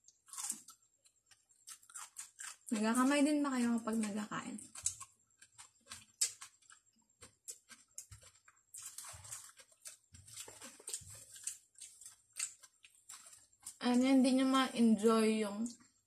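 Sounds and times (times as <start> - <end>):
person chewing food: 0.0 - 2.8, 4.0 - 13.8.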